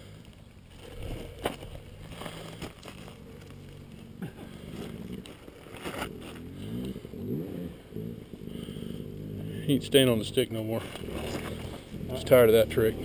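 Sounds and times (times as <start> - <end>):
dirt bike engine idling: 0.0 - 13.0
stick scraping dry brush: 10.0 - 13.0.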